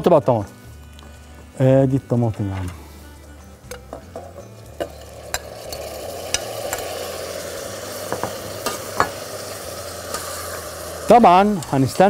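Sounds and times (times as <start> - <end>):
tomatoes sizzling in hot oil: 3.0 - 12.0.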